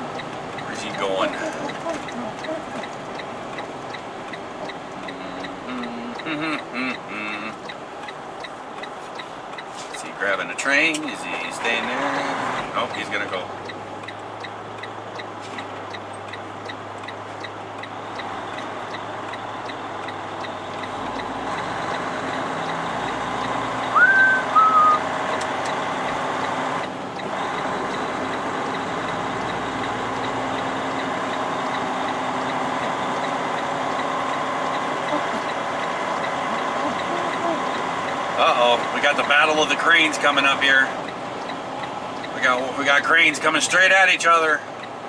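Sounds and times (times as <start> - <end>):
diesel truck engine idling: 0.0 - 45.0
short high squeals: 23.9 - 25.0.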